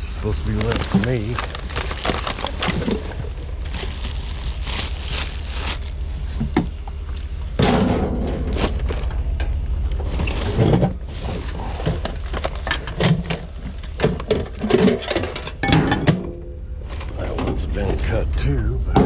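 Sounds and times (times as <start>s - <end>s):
low rumble: 0.0s - 19.0s
junk knocking and clattering: 6.3s - 18.1s.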